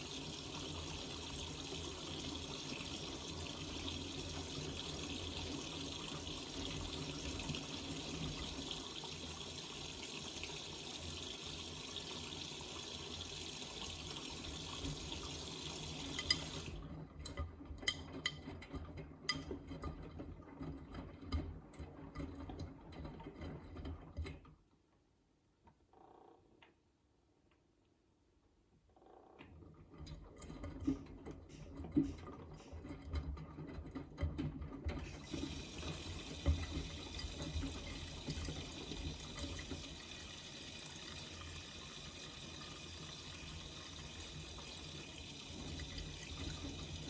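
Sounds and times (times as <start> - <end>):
washing machine water rushing: 0.0 - 17.6, 30.0 - 47.0
washing machine clicks: 30.2 - 37.8.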